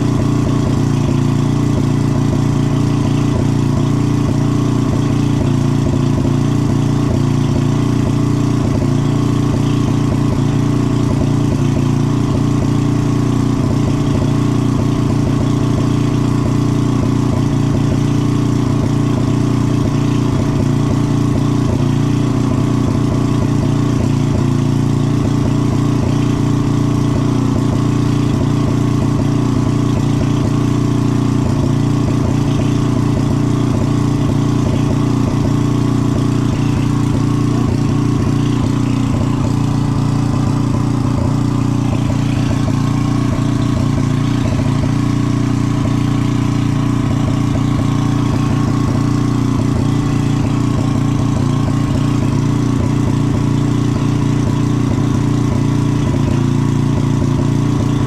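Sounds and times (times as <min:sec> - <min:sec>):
heat gun running: 0:31.6 - 0:54.3.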